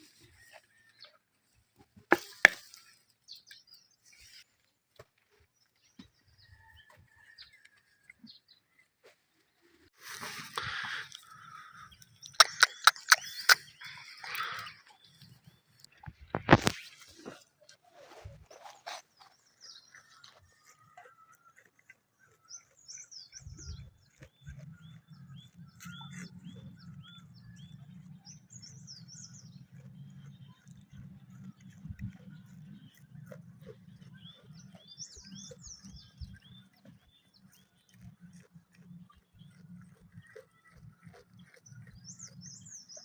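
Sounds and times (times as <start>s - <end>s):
birds chirping: 9.5s - 17.5s, 18.2s - 43.0s.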